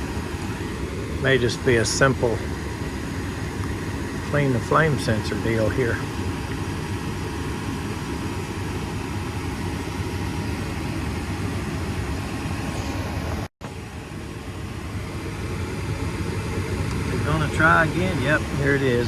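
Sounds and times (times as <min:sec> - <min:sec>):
gas furnace rumbling: 0:00.0 - 0:19.0.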